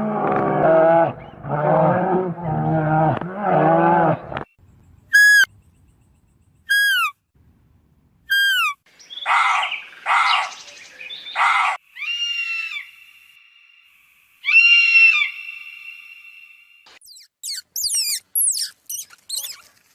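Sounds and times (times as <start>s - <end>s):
falling whistled animal calls: 5.1s - 5.5s, 6.7s - 7.2s, 8.3s - 8.8s.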